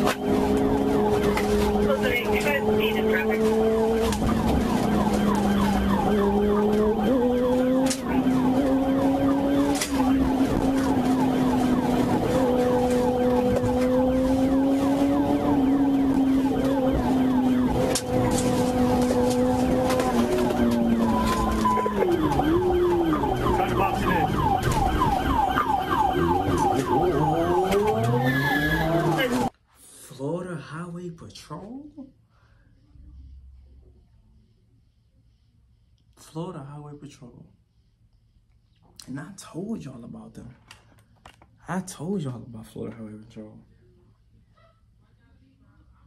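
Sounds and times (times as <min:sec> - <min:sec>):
car engine accelerating: 0:00.0 - 0:29.5
police siren yelping: 0:00.0 - 0:29.5.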